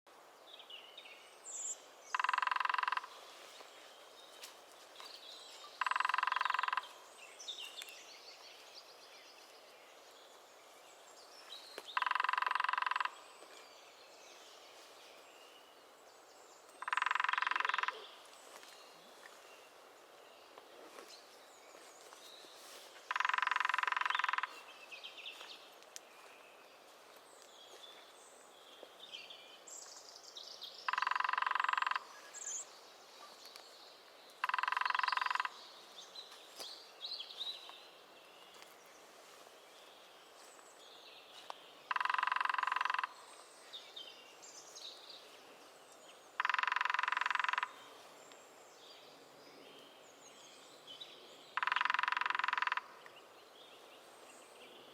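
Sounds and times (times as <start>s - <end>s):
woodpecker drumming: 2.1s - 3.2s, 5.8s - 7.1s, 11.8s - 13.4s, 16.7s - 18.1s, 23.1s - 24.7s, 30.8s - 32.2s, 34.4s - 35.7s, 41.9s - 43.3s, 46.3s - 47.9s, 51.5s - 53.2s
faint small bird calls: 30.8s - 37.8s.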